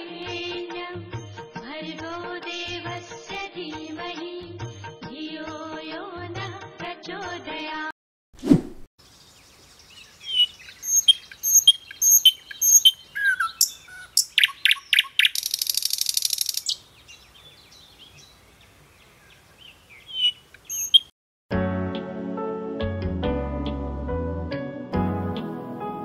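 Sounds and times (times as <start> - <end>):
birds chirping: 9.0 - 21.1
fast bird trill: 9.8 - 17.8, 20.0 - 21.1.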